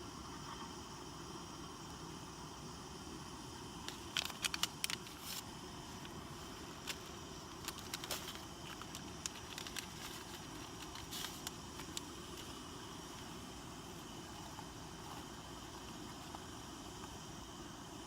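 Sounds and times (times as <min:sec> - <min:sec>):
camp stove hiss: 0:00.0 - 0:18.0
crinkling and clicks of items: 0:03.8 - 0:06.2, 0:06.8 - 0:12.6.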